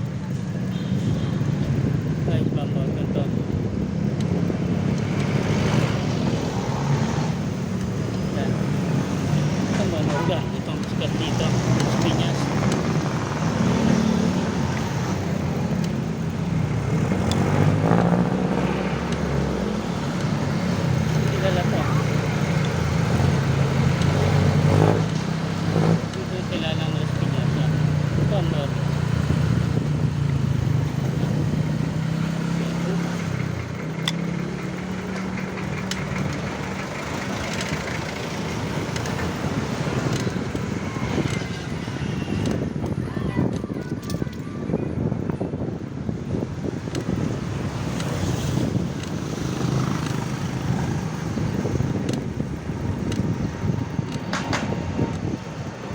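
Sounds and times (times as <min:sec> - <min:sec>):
road noise: 0:00.0 - 0:55.9
street traffic: 0:00.0 - 0:55.9
vehicle engine humming: 0:00.0 - 0:55.9
sharp clicks: 0:10.8 - 0:26.3, 0:27.0 - 0:42.7, 0:46.7 - 0:55.8.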